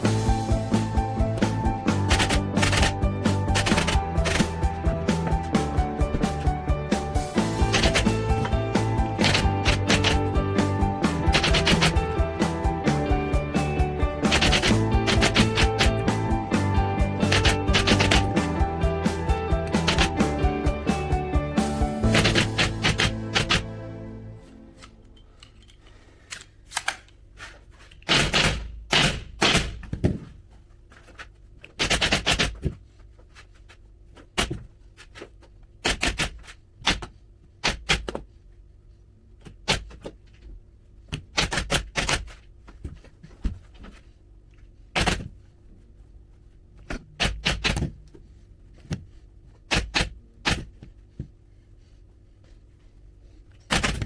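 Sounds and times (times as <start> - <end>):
staple gun firing: 2.1 - 3.0, 3.6 - 4.5, 7.7 - 8.5, 9.2 - 10.3, 11.3 - 12.0, 14.3 - 15.9, 17.2 - 18.3, 19.8 - 20.2, 22.1 - 23.7.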